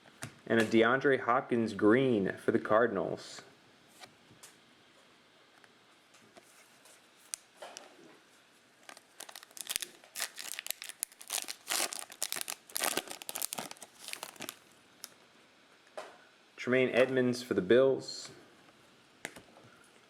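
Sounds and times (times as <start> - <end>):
foil wrapper tearing and crinkling: 8.8 - 15.2.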